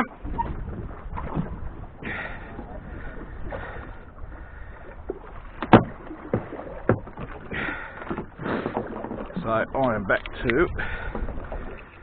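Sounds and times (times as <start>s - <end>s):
water washing against boat hull: 0.0s - 12.0s
sharp knock on boat: 5.6s - 7.4s.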